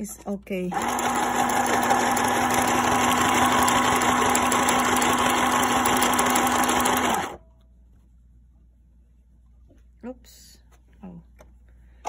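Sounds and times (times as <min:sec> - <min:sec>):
sewing machine running: 0:00.7 - 0:07.4.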